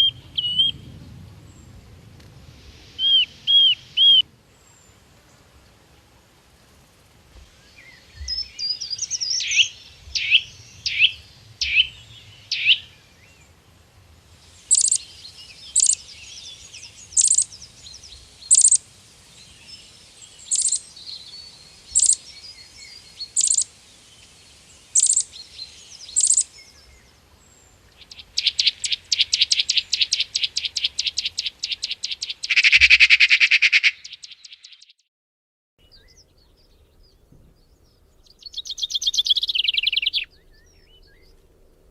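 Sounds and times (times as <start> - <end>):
bird fast trill: 3.0 - 4.2, 8.3 - 12.9, 14.7 - 16.2, 16.9 - 17.6, 18.5 - 18.8, 20.4 - 20.9, 21.9 - 22.3, 23.2 - 23.7, 24.9 - 25.3, 26.0 - 26.5, 28.0 - 34.9, 38.4 - 40.3.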